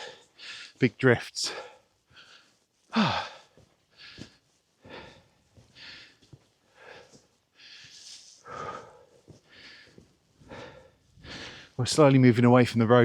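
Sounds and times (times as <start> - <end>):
person breathing hard: 0.0 - 0.8, 1.4 - 11.8
person sighing: 2.9 - 3.5.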